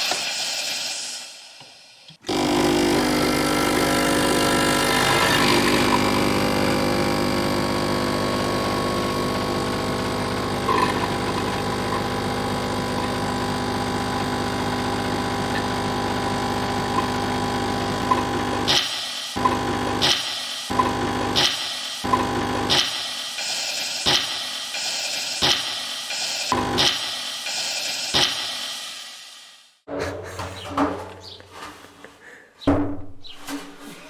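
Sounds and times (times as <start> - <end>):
machine motor humming: 2.2 - 28.8.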